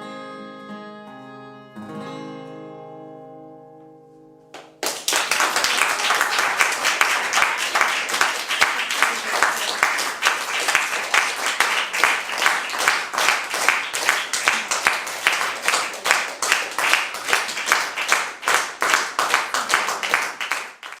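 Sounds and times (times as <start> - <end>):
audience applauding: 4.6 - 21.0.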